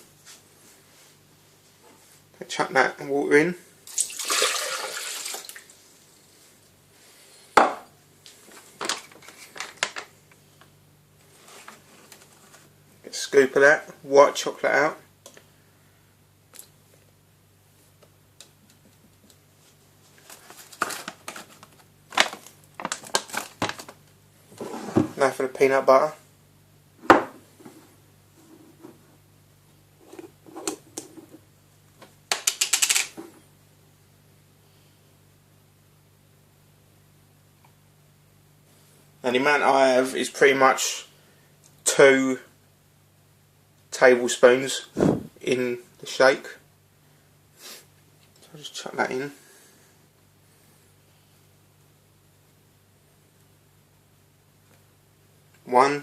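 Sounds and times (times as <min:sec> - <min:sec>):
water pouring into container: 0:03.9 - 0:05.7
plastic clicks: 0:32.3 - 0:33.2.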